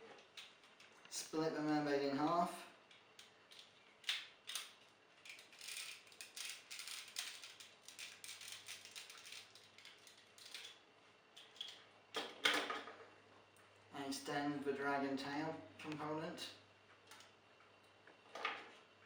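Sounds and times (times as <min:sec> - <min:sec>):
plastic toy parts clicking and rattling: 0:00.2 - 0:01.0, 0:02.9 - 0:10.8.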